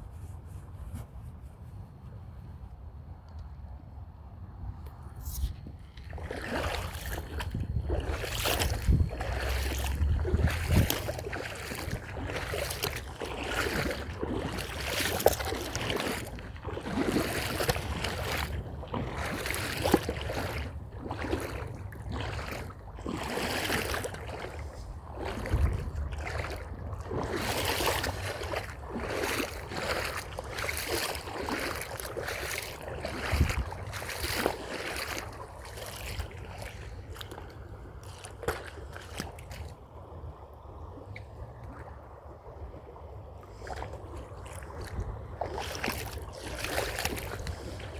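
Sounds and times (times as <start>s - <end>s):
wind rumble on microphone: 0.0s - 47.9s
crunching footsteps: 5.2s - 37.4s.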